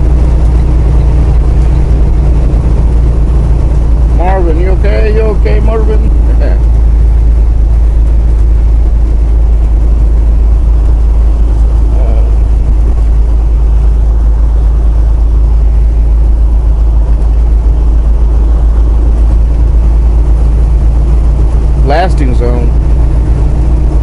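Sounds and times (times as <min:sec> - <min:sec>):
truck engine and road rumble: 0:00.0 - 0:24.0.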